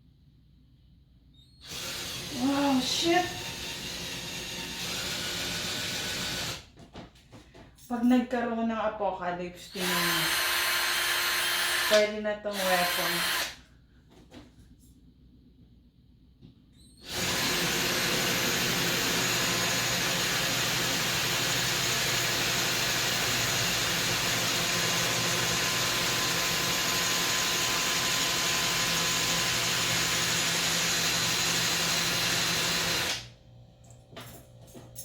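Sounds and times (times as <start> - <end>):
drill motor running: 1.6 - 6.6, 9.7 - 13.6, 17.0 - 33.2.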